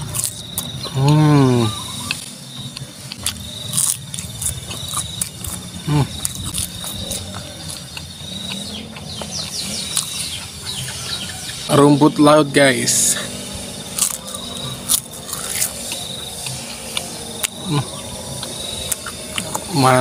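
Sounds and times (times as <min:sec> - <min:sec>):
cricket trilling: 0:00.0 - 0:20.0
man humming: 0:00.9 - 0:02.0, 0:05.8 - 0:06.3, 0:17.6 - 0:18.0
wet chewing mouth clicks: 0:14.0 - 0:19.7.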